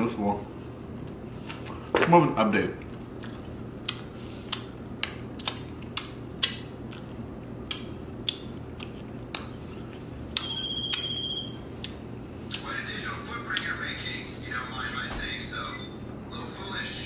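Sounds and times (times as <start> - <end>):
close chewing with wet smacks: 2.9 - 12.7
steady high beep: 15.6 - 16.1.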